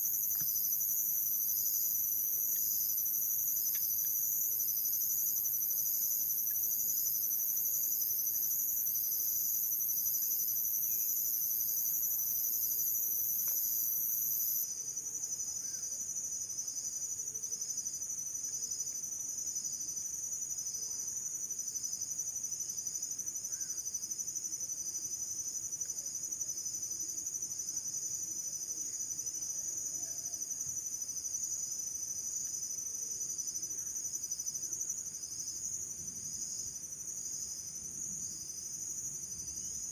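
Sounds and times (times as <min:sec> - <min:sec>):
insects trilling: 0:00.0 - 0:14.6.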